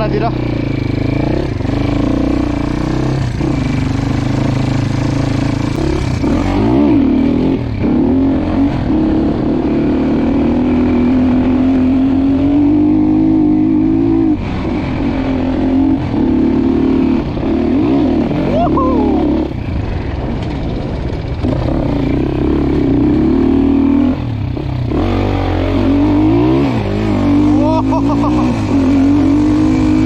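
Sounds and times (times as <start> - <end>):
dirt bike engine revving: 0.0 - 20.3, 21.2 - 30.0.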